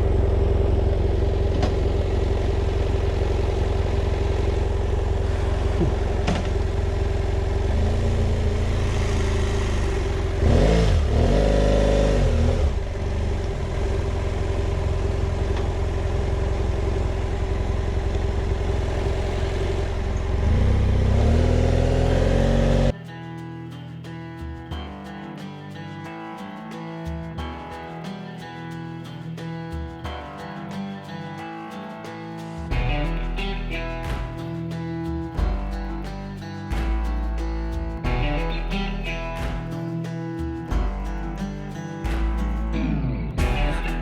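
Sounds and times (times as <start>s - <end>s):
motorcycle engine revving: 0.0s - 23.0s
guitar music: 17.3s - 44.0s.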